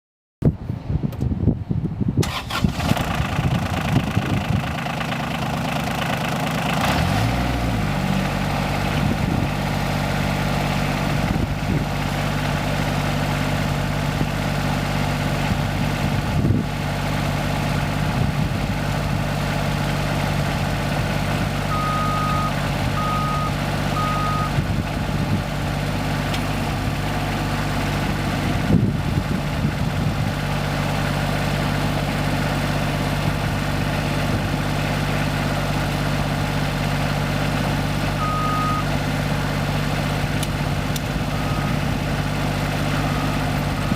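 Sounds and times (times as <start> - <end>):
tractor diesel engine idling: 2.2 - 43.9
short high beeps: 21.7 - 24.6, 38.2 - 38.9.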